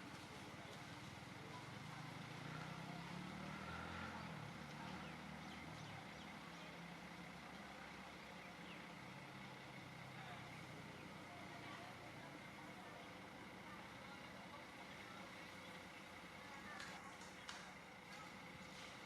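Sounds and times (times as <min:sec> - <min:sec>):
faint low engine hum: 0:00.0 - 0:19.0.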